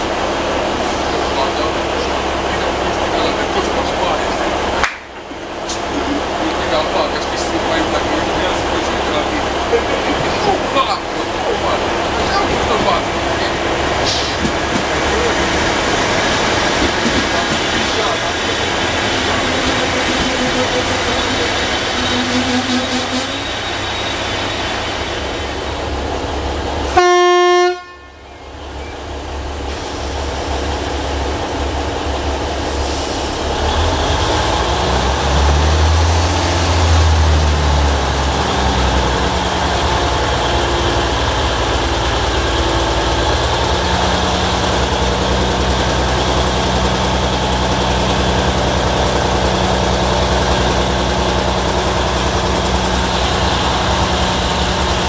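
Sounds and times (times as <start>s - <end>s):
diesel railcar engine humming: 0.0s - 55.0s
train horn blast: 22.0s - 23.4s, 26.9s - 28.2s.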